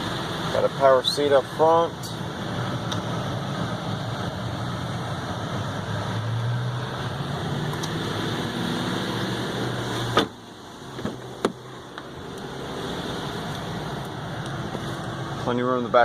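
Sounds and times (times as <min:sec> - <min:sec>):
truck engine running: 0:00.0 - 0:16.0
car door shutting: 0:09.9 - 0:12.1.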